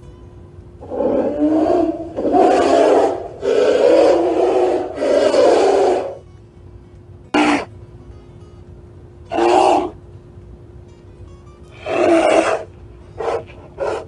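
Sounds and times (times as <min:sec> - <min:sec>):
bear growling: 0:00.8 - 0:06.2, 0:09.3 - 0:10.0, 0:11.8 - 0:12.6.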